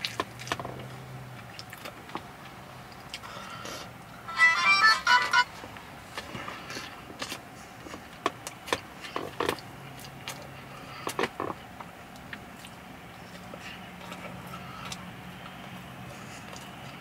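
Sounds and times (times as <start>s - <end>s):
chewing food with mouth smacks: 0.0s - 3.3s, 6.6s - 17.0s
low steady hum: 1.3s - 8.2s.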